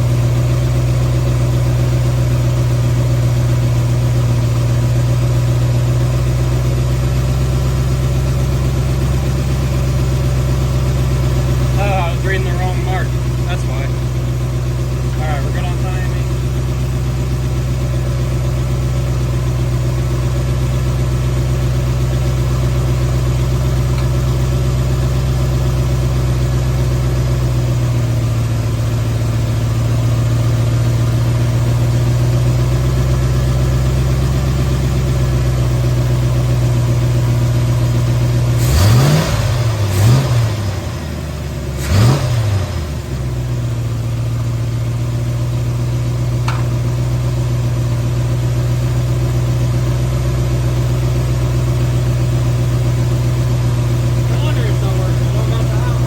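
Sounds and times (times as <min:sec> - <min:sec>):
car engine idling: 0:00.0 - 0:56.0
engine revving: 0:11.5 - 0:14.0, 0:38.5 - 0:43.6, 0:53.9 - 0:56.0.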